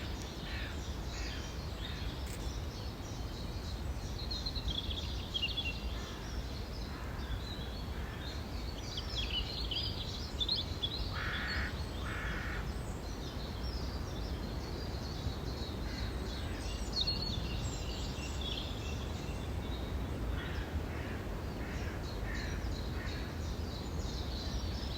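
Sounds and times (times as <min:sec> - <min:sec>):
songbirds singing: 0:00.0 - 0:24.9
crow cawing: 0:11.1 - 0:12.6.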